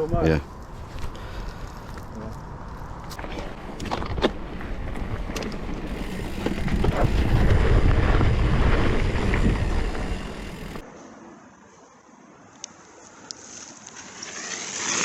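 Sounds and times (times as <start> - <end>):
bicycle rolling rumble: 0.0 - 10.8
wind buffeting microphone: 0.0 - 10.8.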